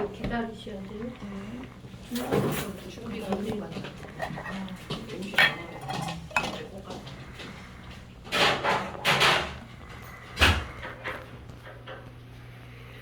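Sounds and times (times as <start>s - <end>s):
dishes clinking: 2.1s - 12.1s
dishes or pots clattering: 3.6s - 7.6s, 8.3s - 9.7s.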